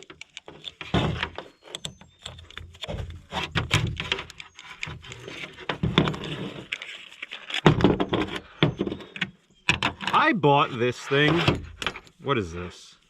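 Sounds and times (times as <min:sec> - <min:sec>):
tools knocking and rattling: 0:00.0 - 0:06.9, 0:07.5 - 0:10.2.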